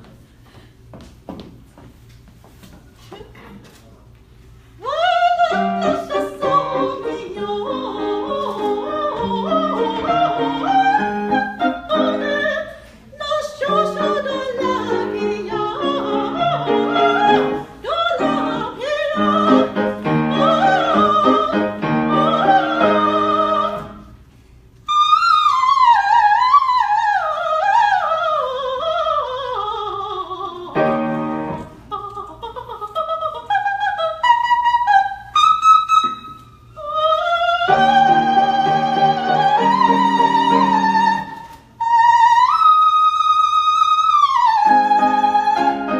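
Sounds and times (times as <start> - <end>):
operatic singing voice: 4.8 - 24.0
piano accompaniment: 5.5 - 12.6, 13.6 - 24.0, 30.8 - 31.8, 37.7 - 41.4, 44.6 - 45.9.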